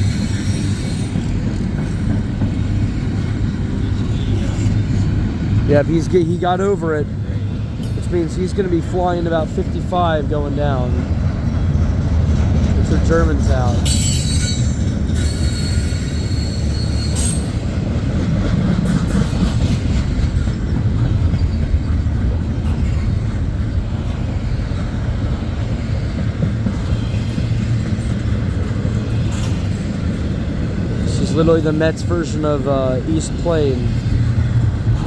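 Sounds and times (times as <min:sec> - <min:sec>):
high wheel squeal: 0:00.0 - 0:04.9, 0:13.8 - 0:17.9
freight train wheels rumbling: 0:00.0 - 0:35.0.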